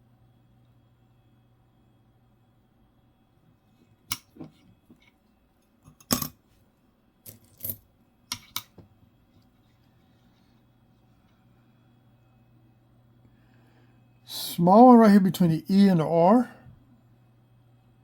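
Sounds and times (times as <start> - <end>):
coins clicking and clinking: 7.3 - 8.6.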